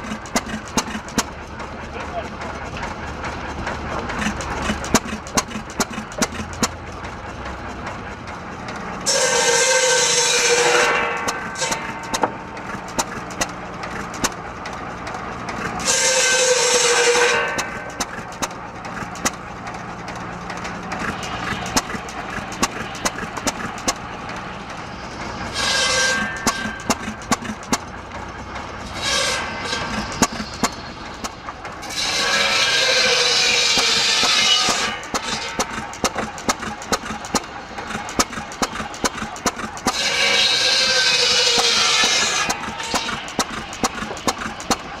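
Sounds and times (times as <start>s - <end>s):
saw blade cutting wood: 0.0s - 1.3s, 4.1s - 6.8s, 9.0s - 14.4s, 15.5s - 19.5s, 20.6s - 24.4s, 25.4s - 27.9s, 28.8s - 45.0s
engine firing bangs: 0.0s - 45.0s.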